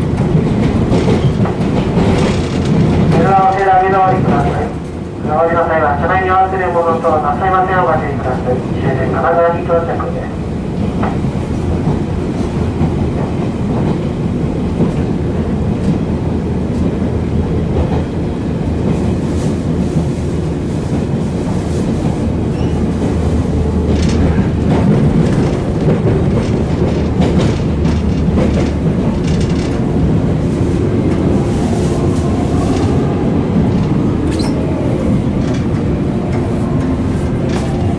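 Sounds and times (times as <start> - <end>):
train rumble: 0.0 - 37.9
wheels clicking over rail joints: 23.8 - 30.2.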